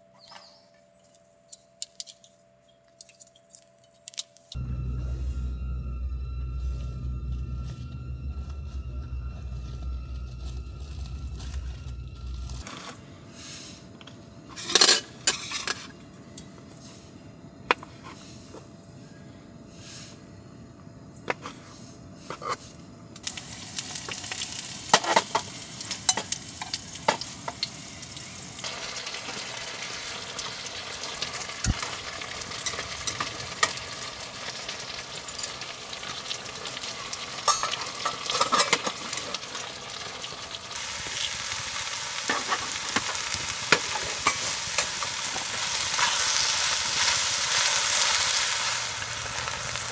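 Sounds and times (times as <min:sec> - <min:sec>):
utensils clinking and scraping: 0:01.0 - 0:04.6, 0:37.4 - 0:39.5
food sizzling in a pan: 0:23.2 - 0:49.9.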